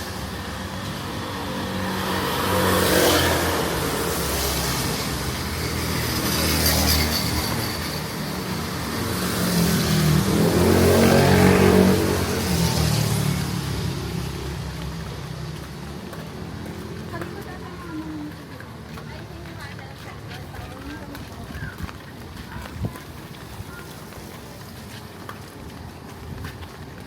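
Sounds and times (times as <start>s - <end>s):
vehicle engine passing by: 0.0s - 18.3s.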